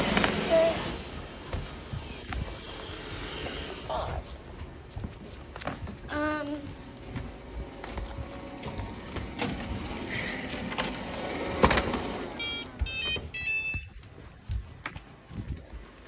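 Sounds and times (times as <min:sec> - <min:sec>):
robot vacuum whirring: 0:00.0 - 0:03.9, 0:07.2 - 0:13.6
electronic beep tones: 0:12.4 - 0:14.0.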